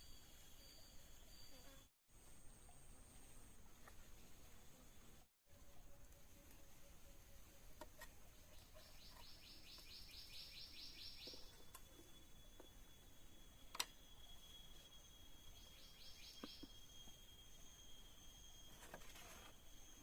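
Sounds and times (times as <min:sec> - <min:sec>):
rapid pulsed chirping call: 0:08.6 - 0:18.9
high-pitched insect drone: 0:10.1 - 0:20.0.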